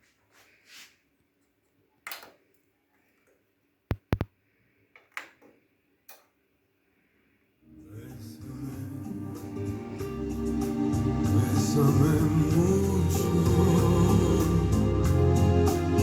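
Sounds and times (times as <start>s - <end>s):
stereo receiver control clicks: 3.9s - 4.3s.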